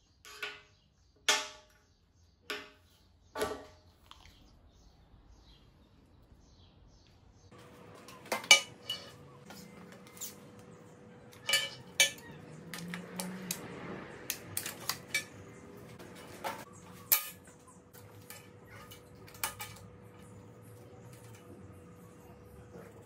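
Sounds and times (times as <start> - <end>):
metal tools clinking on steel table: 8.0 - 10.4, 11.3 - 13.5, 14.5 - 22.2.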